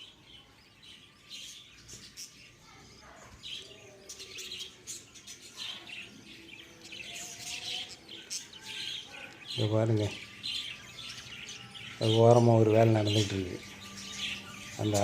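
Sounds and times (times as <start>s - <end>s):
lovebirds chirping: 0.0s - 15.0s.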